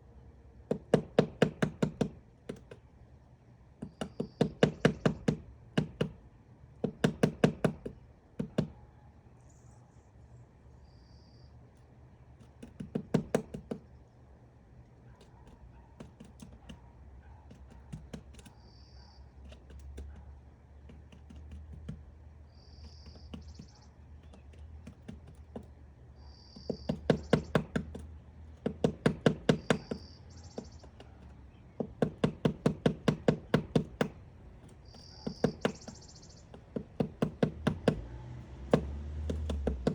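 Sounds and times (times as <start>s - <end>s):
woodpecker hammering wood: 0.5s - 8.9s, 12.0s - 14.0s, 15.1s - 39.9s
high bird chirps: 10.8s - 11.6s, 18.5s - 19.3s, 22.5s - 24.5s, 26.2s - 27.6s, 29.6s - 31.8s, 34.8s - 36.6s.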